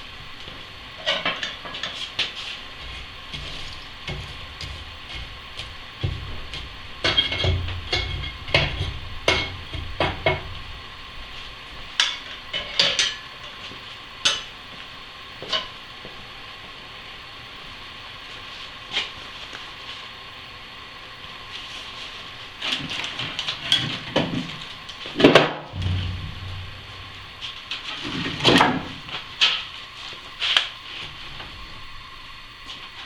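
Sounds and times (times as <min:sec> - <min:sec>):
steady hiss: 0:00.0 - 0:33.0
metal clanks and scrapes: 0:01.0 - 0:10.6, 0:12.0 - 0:13.6, 0:25.2 - 0:29.7.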